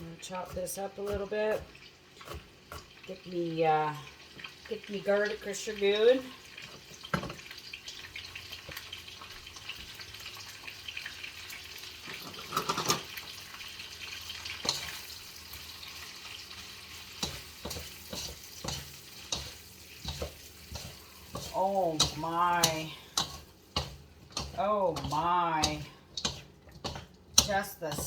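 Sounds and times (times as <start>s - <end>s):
vegetables sizzling in oil: 0.0s - 28.0s
stirring knocks and scrapes: 0.2s - 3.0s, 14.5s - 15.1s, 16.6s - 28.0s.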